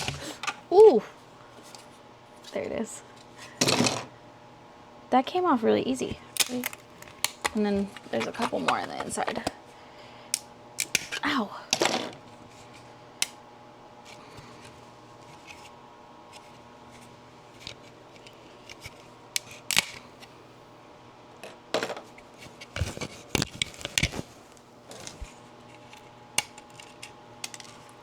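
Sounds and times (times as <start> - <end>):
plastic scraping: 6.4 - 9.5
plastic clicks and snaps: 6.4 - 9.6.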